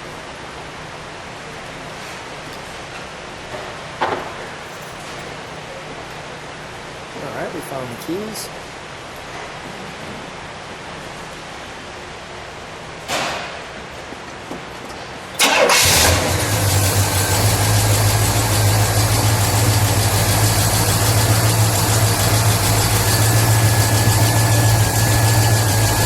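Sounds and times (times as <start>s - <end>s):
car engine starting and idling: 15.4s - 26.0s.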